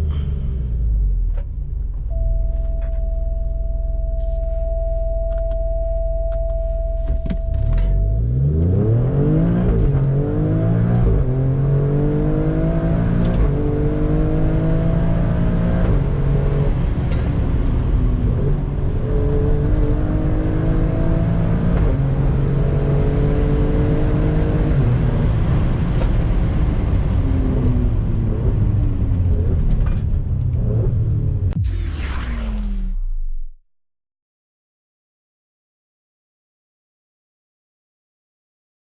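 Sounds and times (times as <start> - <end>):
car engine accelerating hard: 7.0 - 31.6.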